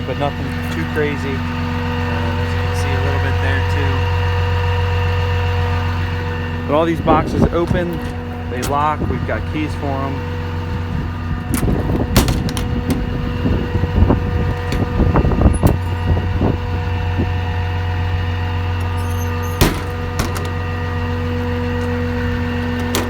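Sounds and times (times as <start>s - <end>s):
diesel engine idling: 0.0s - 23.0s
metal doors and latches clunking: 6.7s - 23.0s.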